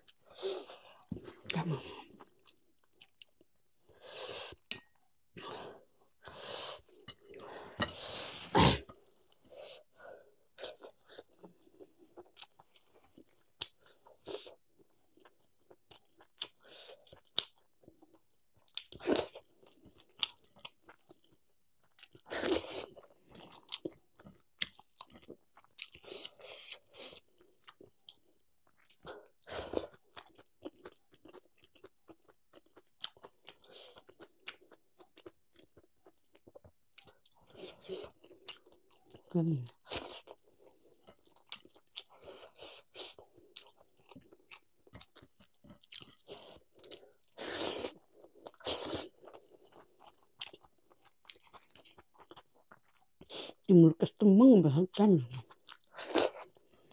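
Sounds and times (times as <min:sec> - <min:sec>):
chewing with mouth clicks: 0:10.6 - 0:53.7, 0:55.3 - 0:56.9.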